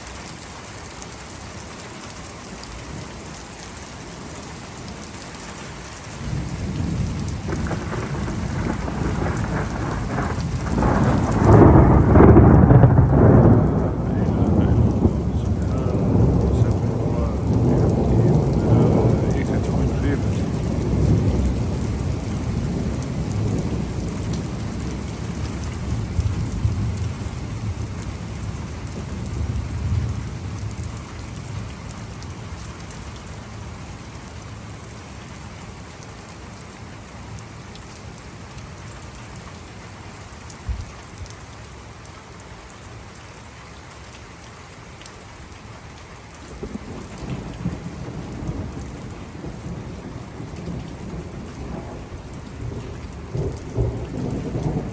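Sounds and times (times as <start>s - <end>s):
steady rain falling: 0.0s - 54.9s
thunder rumbling: 6.2s - 31.0s, 46.6s - 54.9s.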